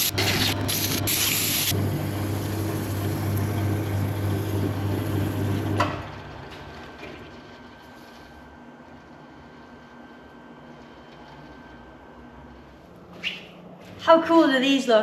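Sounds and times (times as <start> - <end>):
wood lathe motor humming: 0.0 - 7.0.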